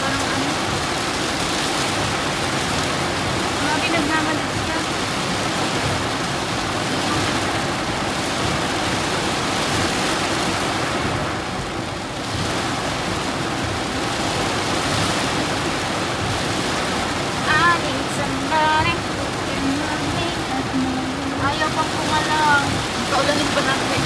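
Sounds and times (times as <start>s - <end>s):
heavy rain on car windshield: 0.0s - 24.0s
person speaking: 17.5s - 24.0s.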